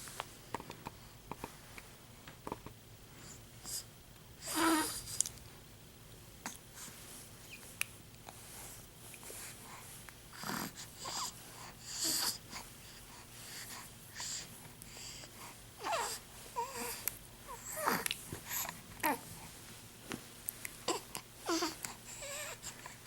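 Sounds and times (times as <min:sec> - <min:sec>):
infant noisy breathing: 0:03.2 - 0:05.2, 0:08.2 - 0:19.7, 0:20.7 - 0:23.0
infant squeaky vocal glides: 0:15.8 - 0:18.0, 0:20.9 - 0:22.7.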